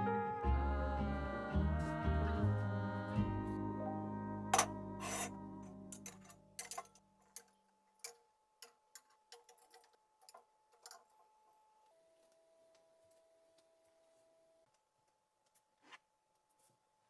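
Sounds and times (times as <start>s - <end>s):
background music: 0.0s - 6.8s.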